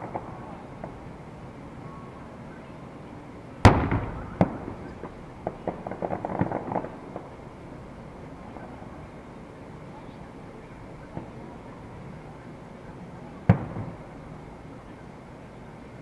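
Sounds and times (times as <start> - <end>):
firework crackling pops: 0.0 - 1.2, 3.6 - 9.2, 11.0 - 11.7, 13.4 - 14.3
firework bang: 3.6 - 7.4, 13.5 - 14.1.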